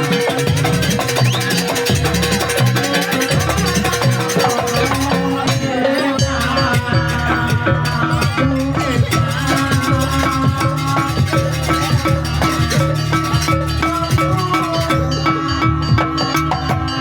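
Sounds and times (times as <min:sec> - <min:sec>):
hand drums: 0:00.0 - 0:17.0
held melodic tones: 0:00.0 - 0:17.0
metal percussion: 0:00.0 - 0:17.0.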